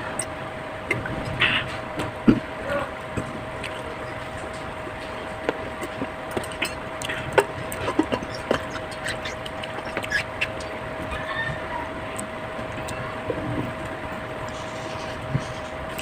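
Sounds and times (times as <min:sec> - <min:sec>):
steady background hum: 0:00.0 - 0:16.0
chewing: 0:03.2 - 0:11.3.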